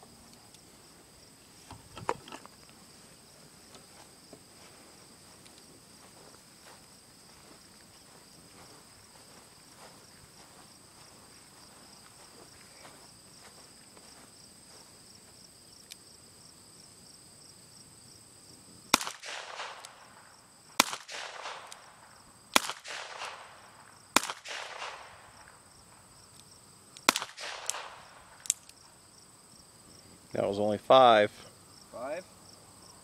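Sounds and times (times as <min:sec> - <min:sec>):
crickets chirping: 0:00.0 - 0:33.0
pistol shots echoing: 0:18.9 - 0:25.3, 0:27.0 - 0:28.5.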